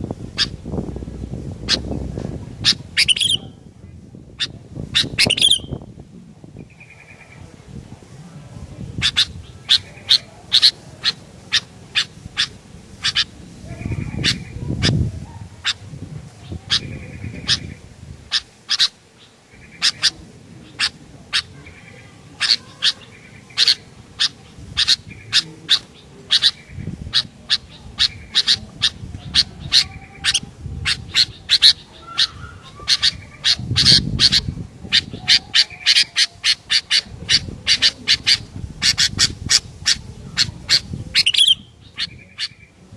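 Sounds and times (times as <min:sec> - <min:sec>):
low rumble: 0:00.0 - 0:03.0
bulbul calling sharp high notes: 0:03.0 - 0:03.4.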